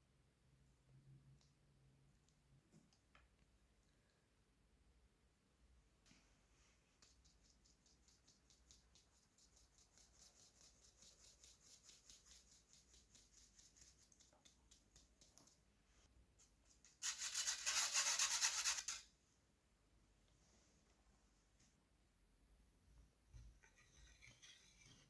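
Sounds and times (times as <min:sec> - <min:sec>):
utensil scraping in mixing bowl: 0:23.6 - 0:25.0.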